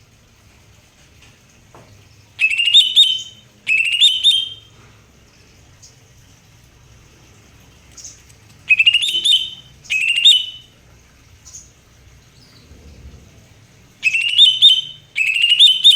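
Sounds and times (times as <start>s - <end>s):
bird singing whistled notes: 2.4s - 4.7s, 8.0s - 10.7s, 14.0s - 15.9s.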